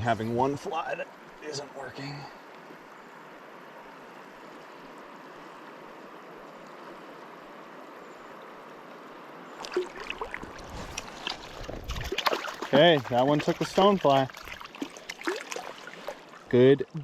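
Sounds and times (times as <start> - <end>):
river current rushing: 0.4 - 16.6
water splashes: 9.5 - 17.0.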